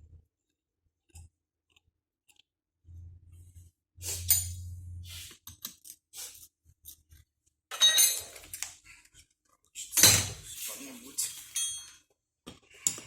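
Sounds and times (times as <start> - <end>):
low hum: 2.9 - 5.2
metal parts and tools clinking: 7.7 - 8.7, 11.1 - 12.0.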